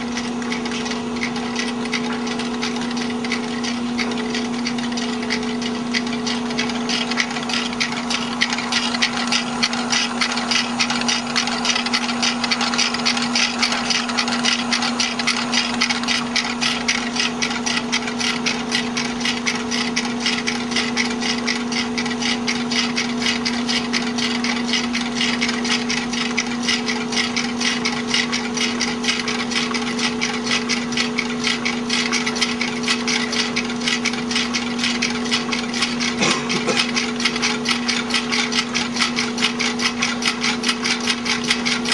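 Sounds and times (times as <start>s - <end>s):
stirling engine clicking: 0.0s - 41.9s
constant low hum: 36.1s - 37.3s.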